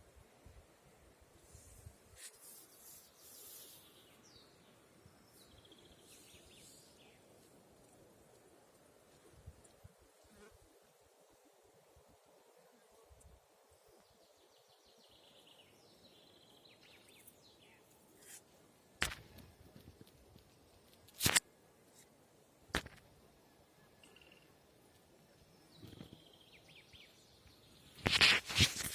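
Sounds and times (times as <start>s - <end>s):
small birds chirping: 2.4s - 7.4s, 13.9s - 18.4s, 25.4s - 28.9s
sharp clicks or snaps: 21.0s - 21.4s.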